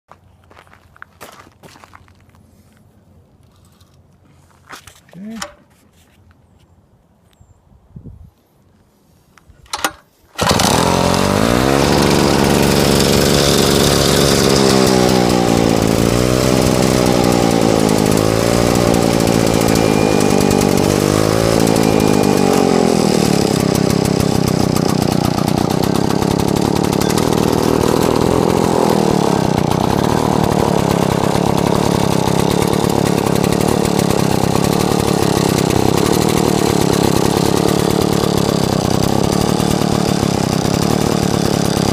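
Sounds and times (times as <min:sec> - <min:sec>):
brush trimmer engine running: 0:09.7 - 0:41.9.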